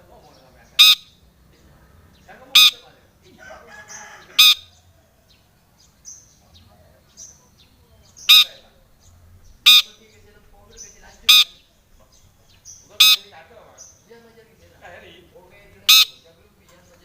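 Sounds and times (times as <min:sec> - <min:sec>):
bird harsh screeches: 0:00.8 - 0:01.2, 0:02.6 - 0:02.9, 0:09.6 - 0:10.1, 0:11.2 - 0:11.7
bird soft chattering: 0:06.0 - 0:14.1.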